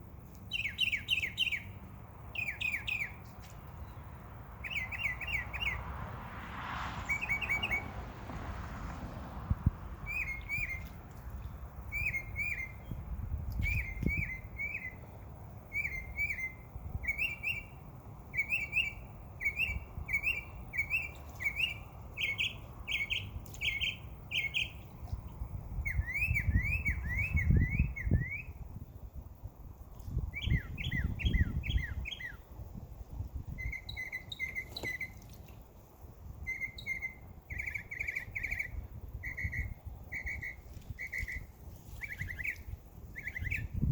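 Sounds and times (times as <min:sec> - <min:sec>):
songbirds chirping and singing: 0:36.5 - 0:43.9.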